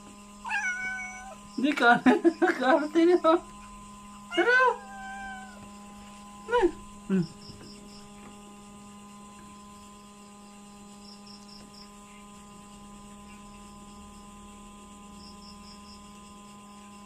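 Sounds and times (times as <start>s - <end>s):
steady electrical hum: 0.0s - 17.0s
high insect chirps: 0.2s - 17.0s
cat meowing: 0.5s - 1.4s, 4.3s - 5.6s.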